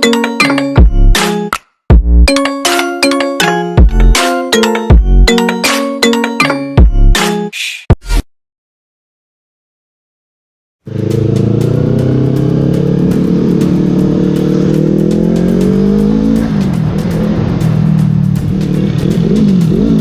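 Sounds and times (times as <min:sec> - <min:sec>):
music: 0:00.0 - 0:08.2, 0:10.9 - 0:20.0
motorcycle engine revving: 0:10.9 - 0:20.0.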